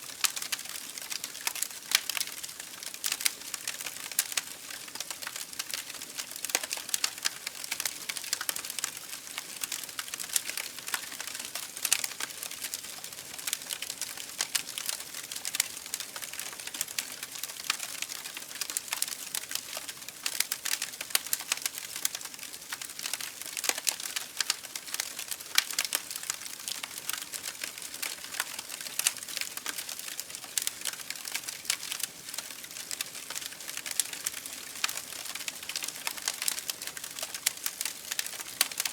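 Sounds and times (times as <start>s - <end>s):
campfire crackling and popping: 0.2s - 38.9s.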